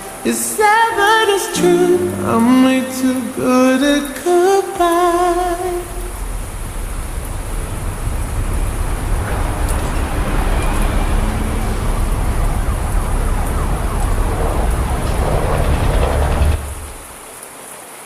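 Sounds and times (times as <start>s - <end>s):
steady rain: 0.0s - 18.0s
deep low rumble: 5.4s - 17.2s.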